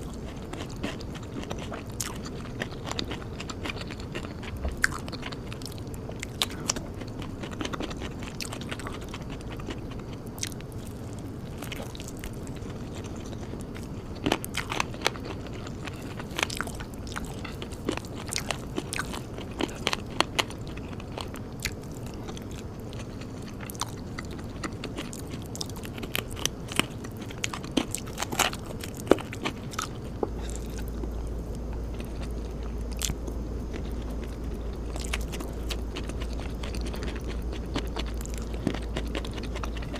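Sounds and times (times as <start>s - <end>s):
person chewing crunchy food: 0.0s - 39.9s
low hum: 14.8s - 39.9s.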